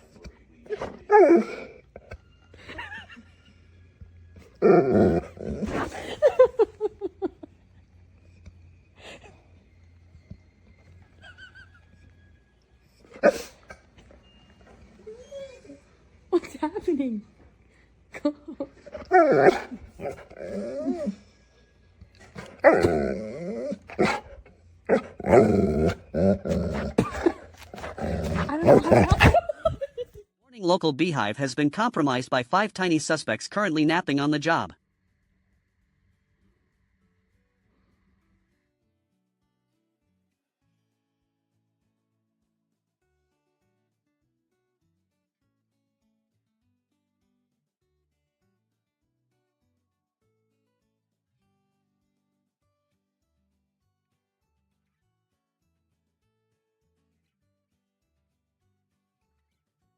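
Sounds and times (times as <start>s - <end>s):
dog vocalizing in pitched calls: 0.7s - 2.1s, 4.5s - 6.5s, 13.1s - 13.7s, 18.8s - 21.2s, 22.2s - 29.8s.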